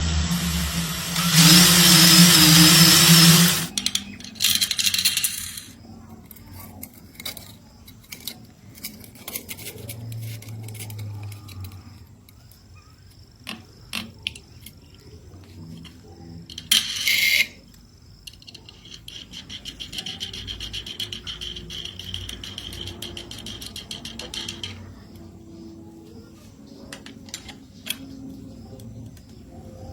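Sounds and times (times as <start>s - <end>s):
electric drill grinding: 0.0s - 3.8s
high whine with fine ticking: 0.0s - 4.3s.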